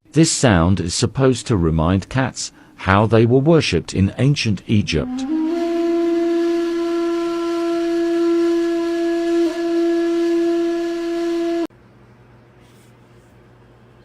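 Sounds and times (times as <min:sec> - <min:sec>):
wind instrument long note: 0:04.8 - 0:11.7
faint room noise: 0:11.7 - 0:14.0.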